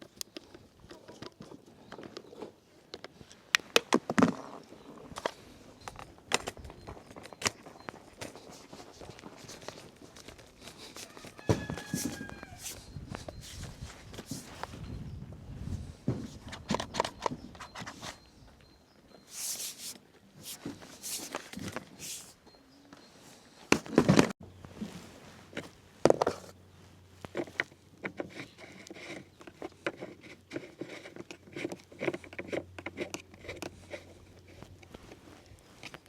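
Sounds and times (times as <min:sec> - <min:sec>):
knocks and clicks of handling equipment: 0:16.0 - 0:18.2, 0:23.7 - 0:24.3.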